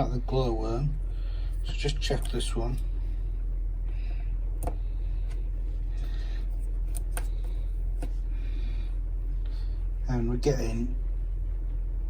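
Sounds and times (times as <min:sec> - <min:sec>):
steady low hum: 0:00.0 - 0:12.0
light clicks and taps of probes: 0:01.8 - 0:02.9, 0:06.9 - 0:08.2.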